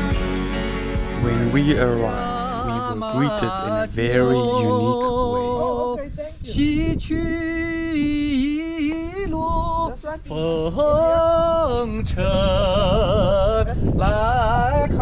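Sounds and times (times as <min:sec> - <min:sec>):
voices singing long held notes: 0:00.0 - 0:05.6
wind rumble on microphone: 0:05.0 - 0:15.0.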